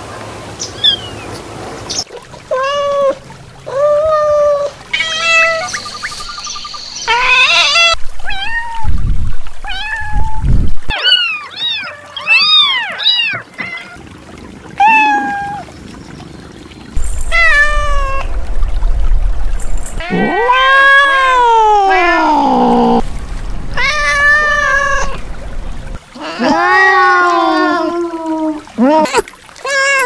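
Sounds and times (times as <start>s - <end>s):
kittens meowing: 20.0s - 23.0s, 23.7s - 25.3s, 26.2s - 30.0s.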